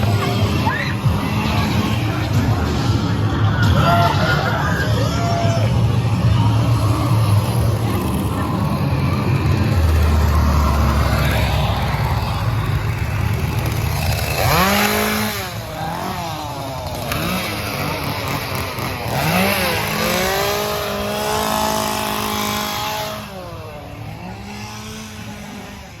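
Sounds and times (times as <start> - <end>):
small engine revving: 0.0 - 26.0
steady rumble: 4.6 - 17.0.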